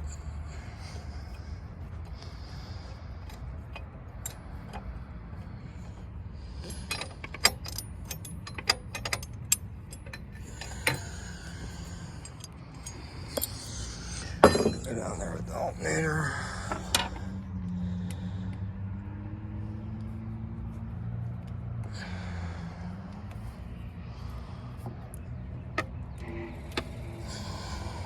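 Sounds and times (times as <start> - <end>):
steady low hum: 0.0 - 28.0
tools and bolts clinking: 6.4 - 17.3.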